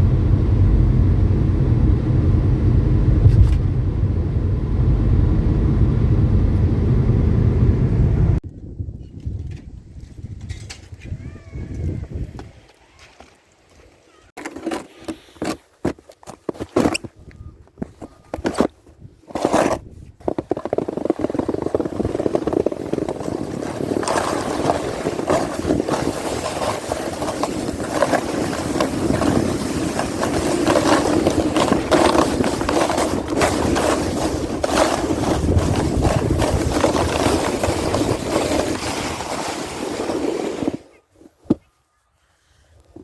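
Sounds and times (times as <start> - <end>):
wind noise: 0.0 - 12.8, 16.9 - 41.8
sled scraping over snow: 14.1 - 41.7.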